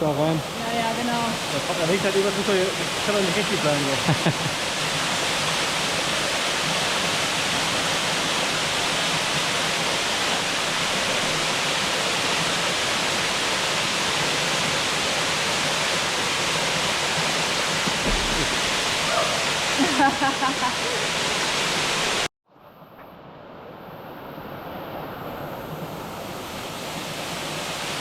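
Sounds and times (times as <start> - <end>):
waterfall rushing: 0.0 - 22.3.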